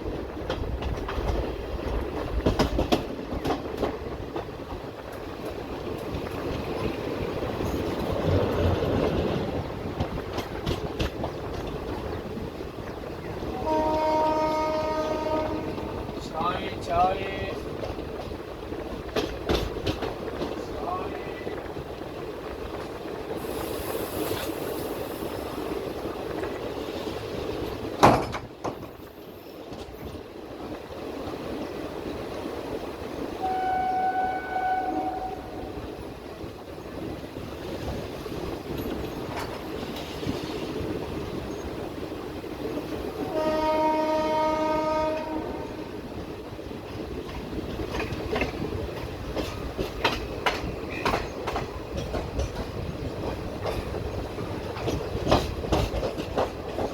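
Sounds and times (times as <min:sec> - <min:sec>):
wheels clickety-clack: 0:00.0 - 0:33.2, 0:35.2 - 0:45.4, 0:46.1 - 0:56.9
train rumbling: 0:00.0 - 0:56.9
train horn blasts: 0:13.4 - 0:16.1, 0:33.4 - 0:35.8, 0:43.2 - 0:46.0.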